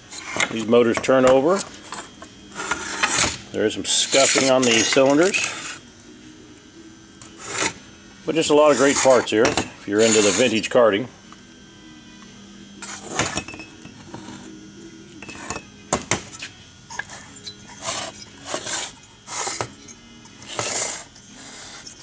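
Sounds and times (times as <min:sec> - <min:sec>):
rough scraping on metal: 0:08.6 - 0:09.3, 0:10.0 - 0:10.6.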